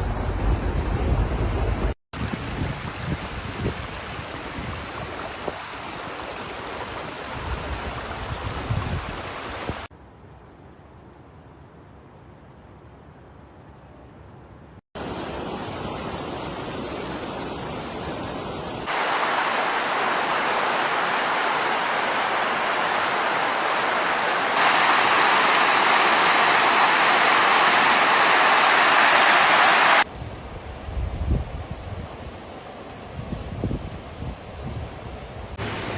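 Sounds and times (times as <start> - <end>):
floodwater rushing: 0.0 - 9.9, 15.0 - 30.1, 35.6 - 35.9.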